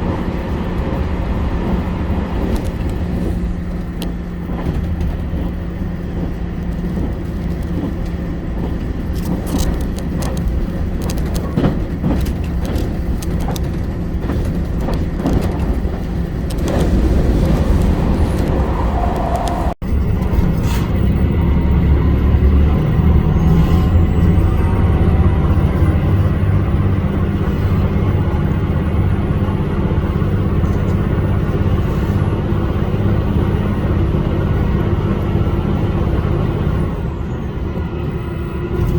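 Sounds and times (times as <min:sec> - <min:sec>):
rail clicks: 0:00.0 - 0:22.0
diesel railcar engine drone: 0:00.0 - 0:38.9.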